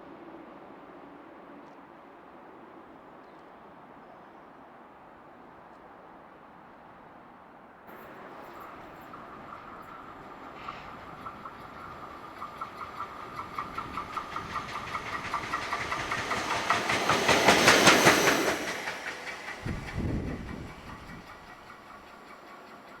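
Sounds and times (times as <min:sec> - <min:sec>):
fast even clacking with hiss: 0:07.9 - 0:23.0.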